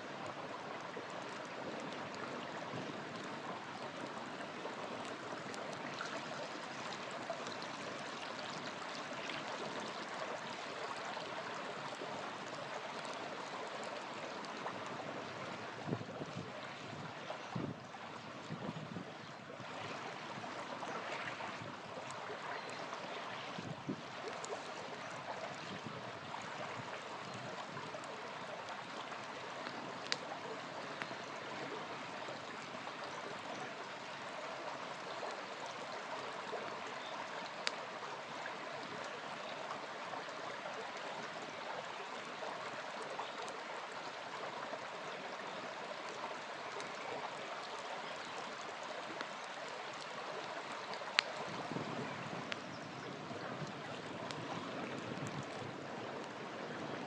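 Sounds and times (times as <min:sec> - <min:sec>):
river flowing: 0:00.0 - 0:57.0
campfire crackling and popping: 0:00.2 - 0:16.9, 0:21.9 - 0:31.6, 0:36.7 - 0:39.1, 0:47.7 - 0:52.7, 0:53.6 - 0:56.4.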